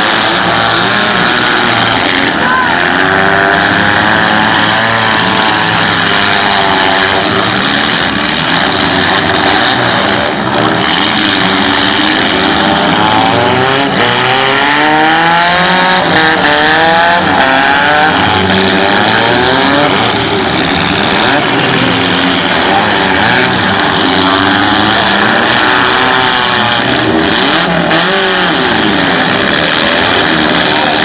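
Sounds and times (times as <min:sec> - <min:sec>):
car engines revving: 0:00.0 - 0:31.0.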